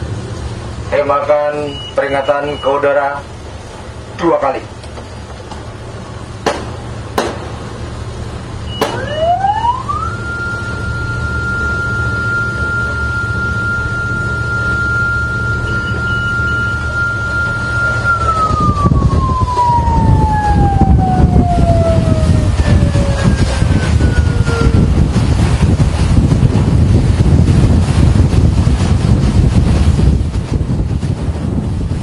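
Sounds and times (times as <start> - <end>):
low engine rumble: 0.0 - 32.0
rushing wind: 3.2 - 32.0
gunshot cracks: 6.5 - 7.6, 8.8 - 9.1
siren wailing: 8.7 - 25.0.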